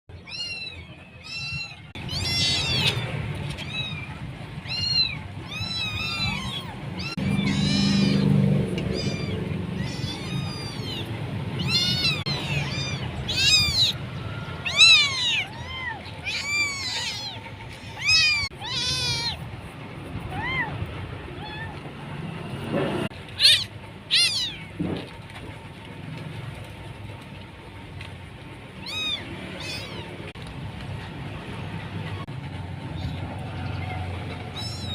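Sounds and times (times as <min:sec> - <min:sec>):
kittens meowing: 0:00.1 - 0:19.5, 0:23.3 - 0:24.8, 0:28.8 - 0:30.3, 0:33.0 - 0:34.9.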